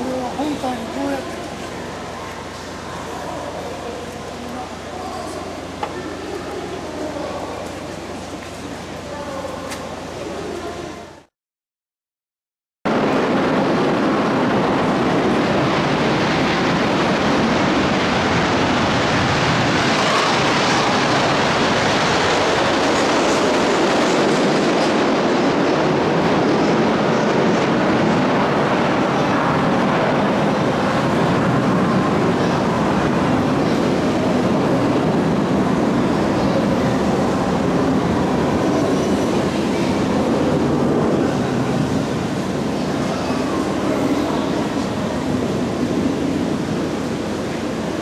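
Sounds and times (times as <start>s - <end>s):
jet engine running: 12.9s - 48.0s.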